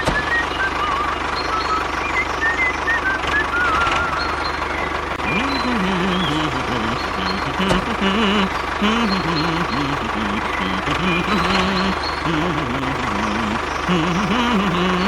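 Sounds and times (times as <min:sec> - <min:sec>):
low wavering voice-like sound: 0:05.0 - 0:15.0.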